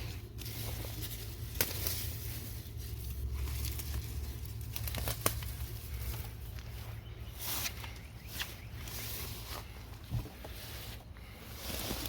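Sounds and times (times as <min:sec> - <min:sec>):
sharp snaps and crackles: 0:00.0 - 0:06.8
plant stems rustling and tearing: 0:00.0 - 0:12.0
steady low rumble: 0:00.0 - 0:12.0.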